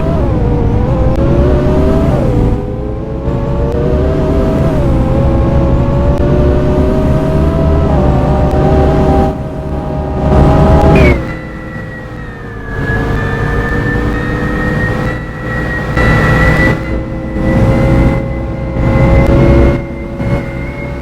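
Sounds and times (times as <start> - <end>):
bus diesel engine accelerating: 0.0 - 21.0
thin high whine: 10.0 - 21.0.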